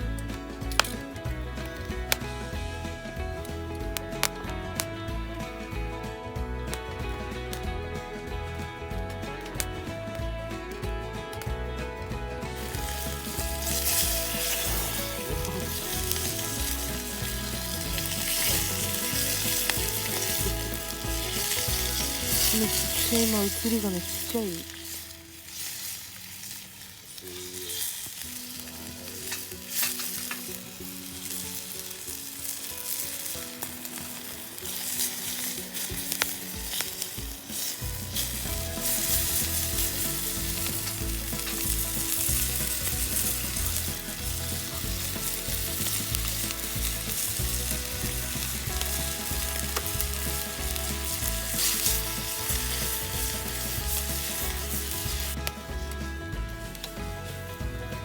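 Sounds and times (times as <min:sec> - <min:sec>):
background music with bass: 0:00.0 - 0:25.5, 0:27.1 - 0:58.0
food sizzling in a pan: 0:12.5 - 0:55.5.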